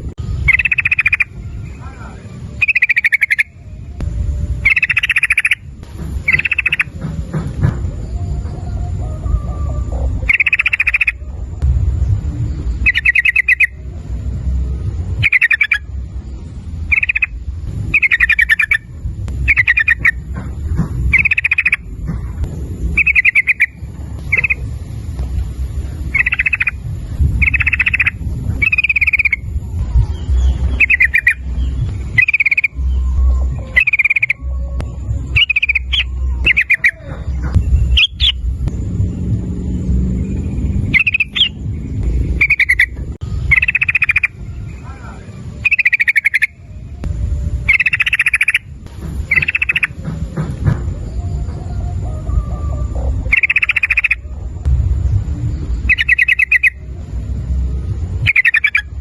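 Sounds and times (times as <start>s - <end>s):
low rumble: 0.0s - 59.0s
bird singing chattering phrases: 0.4s - 3.7s, 4.6s - 7.2s, 10.1s - 11.2s, 12.8s - 13.8s, 15.1s - 15.9s, 16.8s - 24.9s, 25.9s - 26.8s, 27.4s - 29.5s, 30.1s - 34.4s, 35.3s - 38.4s, 40.6s - 46.6s, 47.7s - 50.1s, 53.3s - 54.2s, 55.9s - 56.8s, 58.2s - 59.0s.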